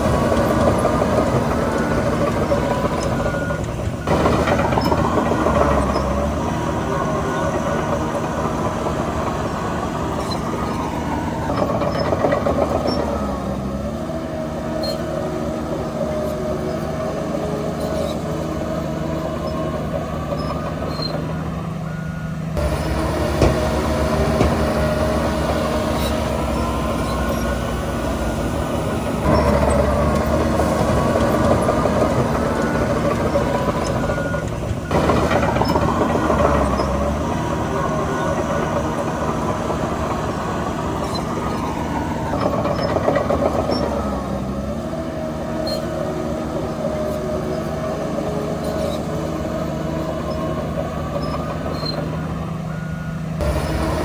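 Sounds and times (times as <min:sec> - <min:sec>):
heavy diesel engines under load: 0:00.0 - 0:54.0.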